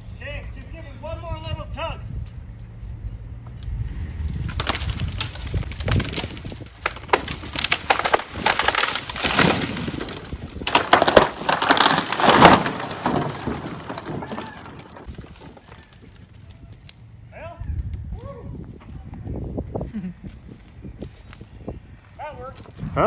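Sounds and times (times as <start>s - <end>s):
tree wood splintering and cracking: 4.3s - 15.8s
branches crashing: 4.5s - 15.4s.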